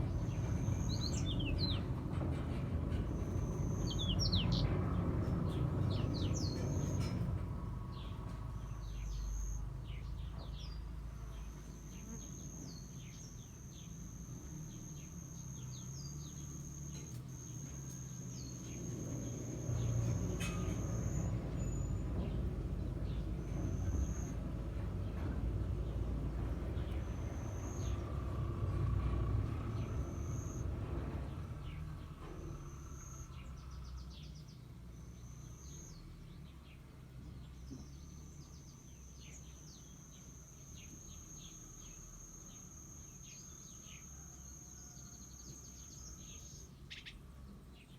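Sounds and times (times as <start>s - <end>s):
birds chirping: 0.0s - 47.2s
high insect trill: 3.0s - 7.3s, 10.7s - 33.5s, 34.9s - 36.1s, 37.8s - 46.7s.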